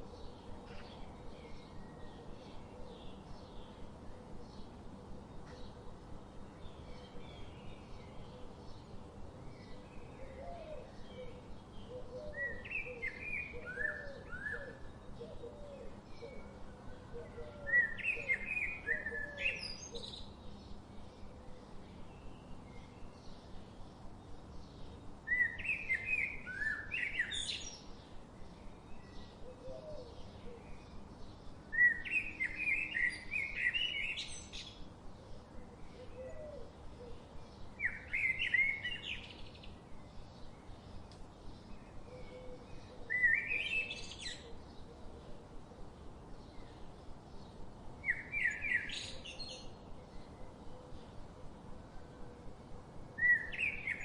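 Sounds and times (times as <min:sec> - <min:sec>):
faint background hiss: 0:00.0 - 0:54.0.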